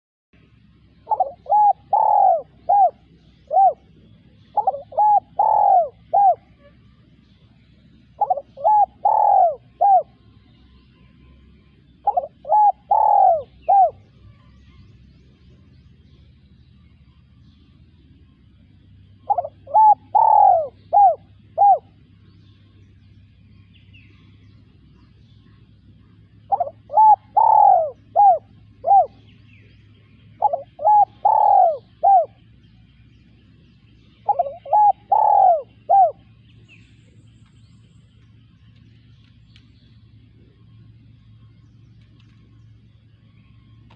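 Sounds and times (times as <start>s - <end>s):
dove cooing: 1.0s - 6.9s, 7.7s - 10.4s, 11.8s - 14.0s, 19.1s - 22.2s, 25.6s - 32.6s, 34.1s - 36.4s.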